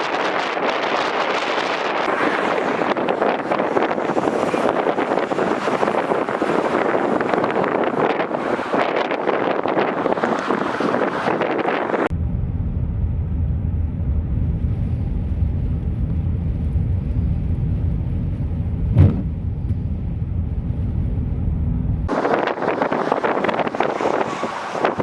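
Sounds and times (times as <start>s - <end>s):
vehicle rumbling: 1.6s - 25.0s
whoosh: 12.0s - 25.0s.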